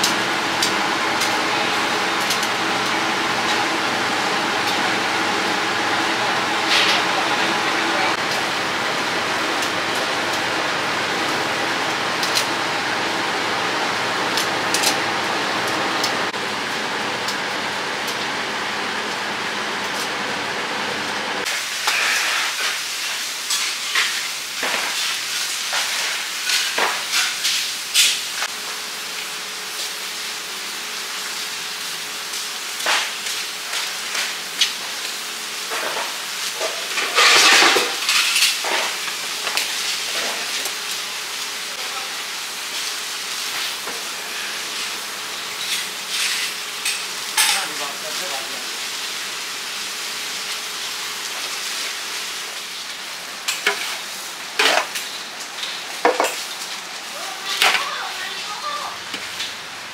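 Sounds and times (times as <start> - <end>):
food sizzling: 0.0 - 59.9
utensils clinking on pans: 35.7 - 40.6, 45.6 - 48.0, 53.5 - 54.0, 54.6 - 56.6, 57.5 - 58.0.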